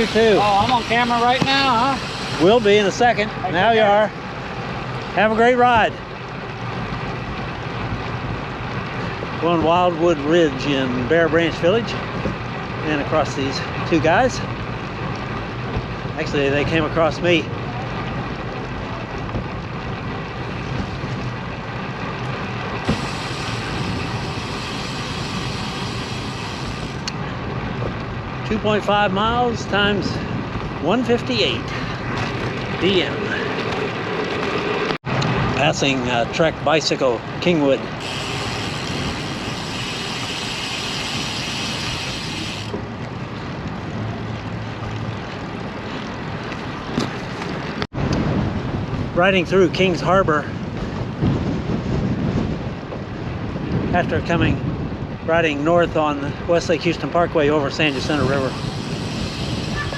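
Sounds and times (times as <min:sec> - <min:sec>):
freewheel hub buzz: 0:00.0 - 0:05.0, 0:20.4 - 0:27.4, 0:37.8 - 0:43.1, 0:57.6 - 0:59.9
bicycle tyres rolling: 0:00.0 - 0:59.9
wind noise on microphone: 0:13.8 - 0:59.9.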